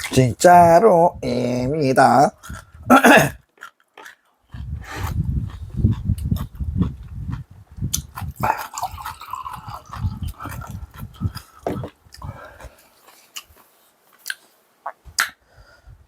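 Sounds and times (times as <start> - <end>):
mouth clicks: 2.4 - 12.3, 14.2 - 15.4
person chewing: 2.4 - 15.4.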